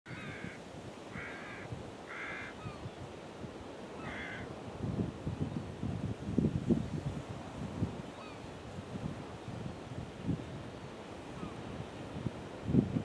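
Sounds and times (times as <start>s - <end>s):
wind rumbling on microphone: 0.1s - 13.0s
bird calling: 1.2s - 2.9s.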